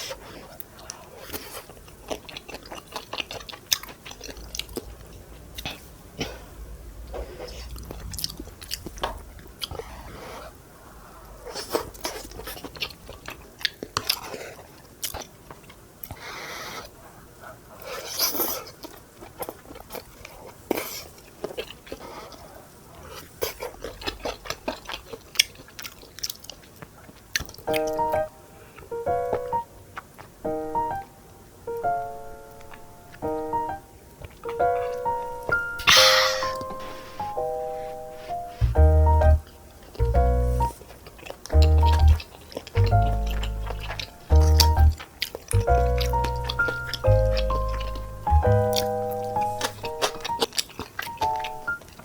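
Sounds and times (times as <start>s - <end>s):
chewing with wet mouth clicks: 0.6s - 6.4s, 7.4s - 9.8s, 11.6s - 16.2s, 17.9s - 29.4s, 39.4s - 52.0s.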